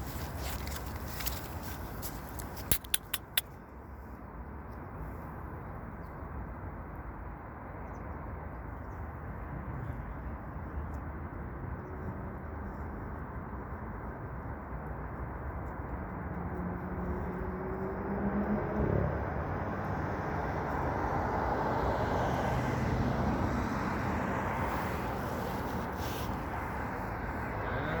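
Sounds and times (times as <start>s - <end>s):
outdoor background rumble: 0.0s - 28.0s
faint engine hum: 8.6s - 28.0s.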